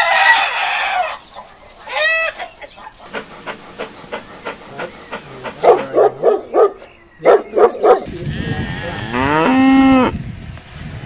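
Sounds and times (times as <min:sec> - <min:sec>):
chickens clucking: 0:00.5 - 0:08.1
dog barking: 0:05.6 - 0:08.1.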